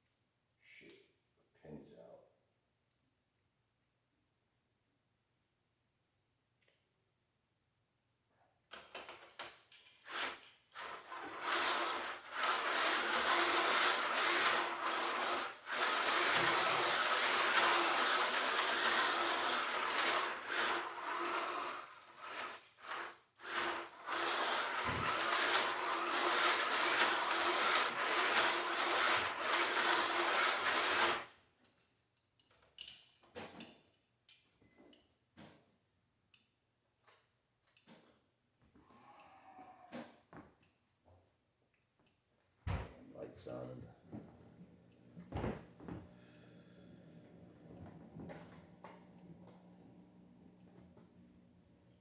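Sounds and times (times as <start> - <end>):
slot car motor whine: 10.1 - 31.3
slot car rattling in track: 10.8 - 22.6, 23.6 - 31.2.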